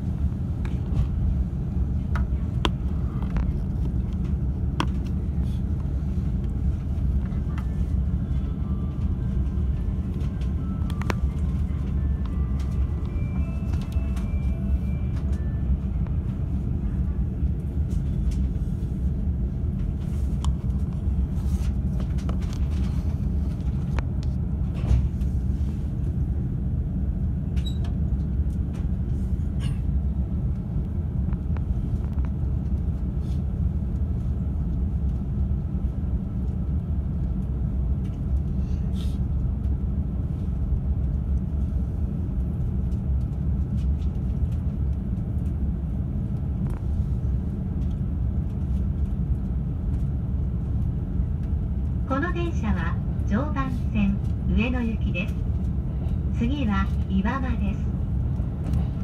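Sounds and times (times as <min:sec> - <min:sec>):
train low rumble: 0:00.0 - 0:59.0.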